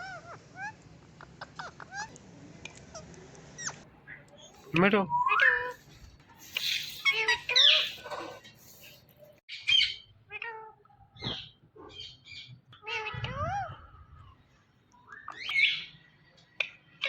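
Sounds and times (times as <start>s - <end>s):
parrot calling: 0.0s - 2.2s, 6.4s - 8.5s.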